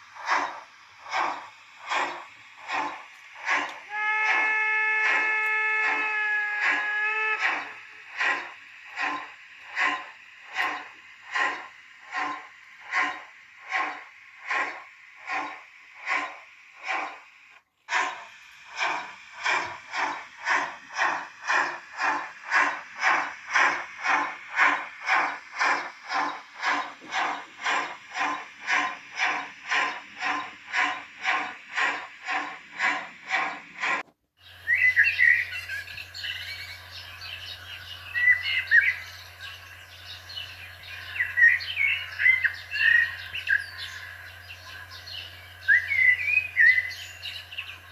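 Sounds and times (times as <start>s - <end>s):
model steam locomotive chuffs: 0.0s - 47.9s
steady low hum: 0.0s - 47.9s
birds chirping: 18.0s - 47.9s.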